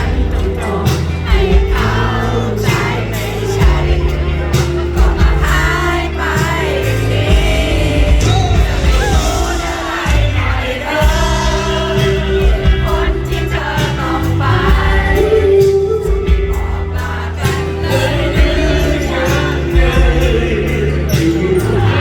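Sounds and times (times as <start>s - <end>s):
live pop band with singer: 0.0s - 22.0s.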